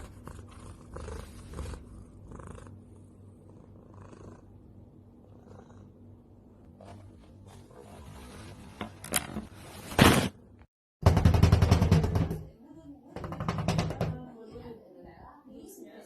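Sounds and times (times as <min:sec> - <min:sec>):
cat purring: 0:00.0 - 0:06.7.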